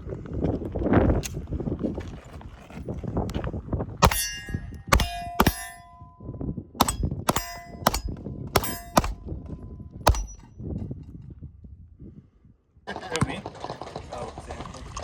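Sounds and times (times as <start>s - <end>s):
suppressed pistol shots: 4.0s - 6.0s, 6.8s - 9.4s, 10.1s - 10.5s
steel targets clanging: 4.0s - 6.1s, 6.8s - 9.4s, 10.1s - 10.5s.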